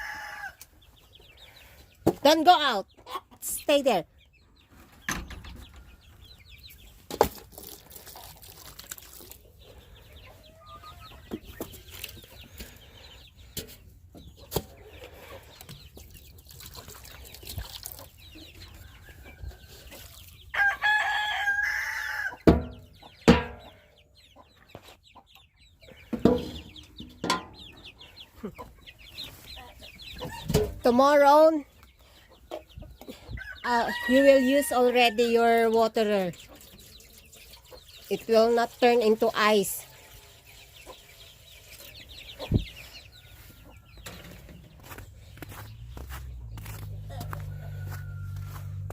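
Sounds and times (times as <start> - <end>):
rooster crowing: 0.0 - 0.6, 20.6 - 22.4, 47.1 - 48.9
chickens clucking: 0.0 - 48.9.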